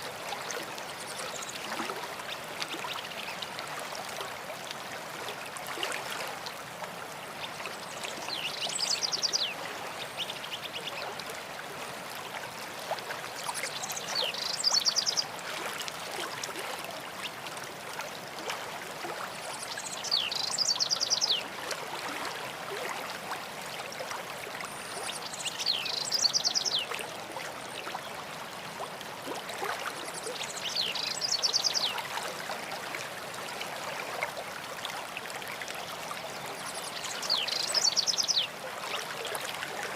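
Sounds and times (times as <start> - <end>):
stream running: 0.0 - 39.9
songbird singing: 7.9 - 11.0, 13.6 - 15.3, 19.6 - 21.4, 24.9 - 27.0, 30.2 - 32.0, 36.6 - 38.6.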